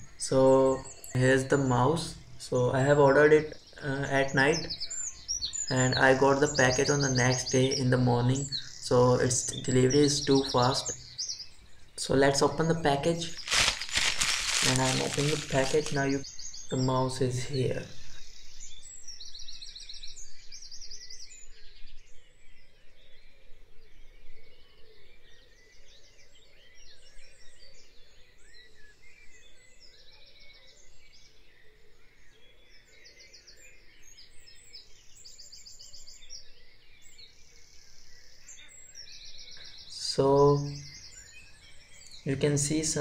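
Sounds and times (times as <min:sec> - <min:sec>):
birds chirping: 0:00.0 - 0:18.8, 0:35.1 - 0:43.0
plastic bag and bubble wrap rustling: 0:13.2 - 0:16.2.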